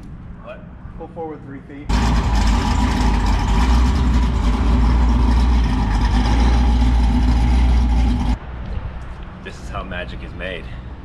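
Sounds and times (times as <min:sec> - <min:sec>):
large vehicle engine rumbling: 0:01.9 - 0:08.4.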